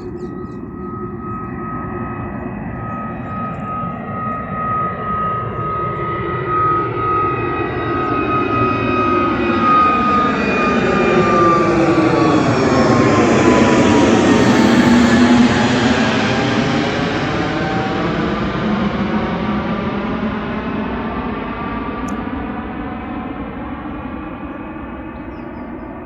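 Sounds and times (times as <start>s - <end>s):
jet engines at departure thrust: 0.0s - 26.0s
high fan whine: 11.2s - 16.8s.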